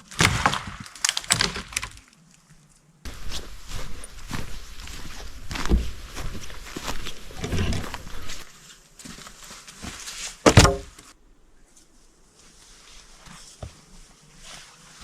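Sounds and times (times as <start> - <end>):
footsteps on forest floor: 0.0 - 14.3
loud wooden knock: 10.5 - 10.9.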